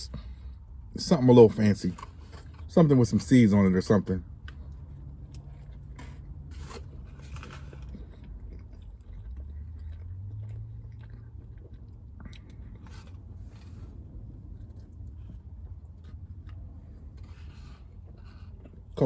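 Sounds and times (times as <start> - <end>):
low steady hum: 0.0 - 19.0
person chewing food: 4.2 - 19.0.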